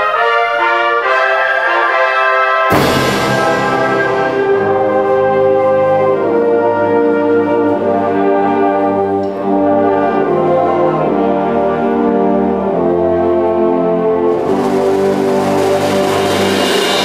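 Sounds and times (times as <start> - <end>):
concert band sustained chords: 2.7 - 17.0.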